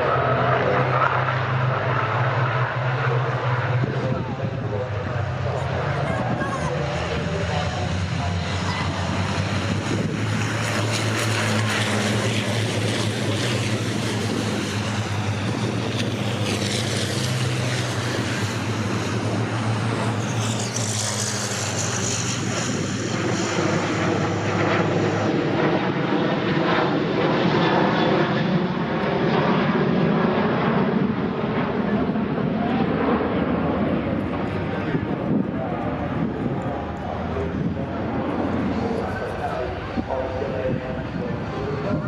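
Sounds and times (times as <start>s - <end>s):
racing truck diesel engines: 0.0s - 6.1s, 6.7s - 25.5s.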